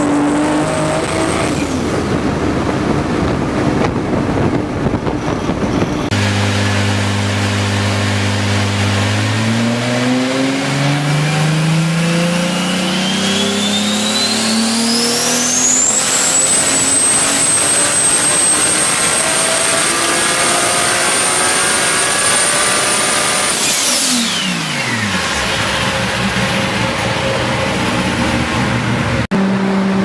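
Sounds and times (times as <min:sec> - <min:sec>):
car engine revving: 0:00.0 - 0:30.0
turbo whistle: 0:12.4 - 0:20.0.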